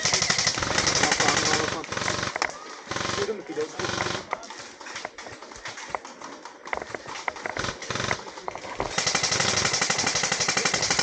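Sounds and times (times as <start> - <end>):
airsoft gun firing full auto: 0.0 - 4.3, 7.0 - 11.0
sharp clicks: 0.1 - 11.0.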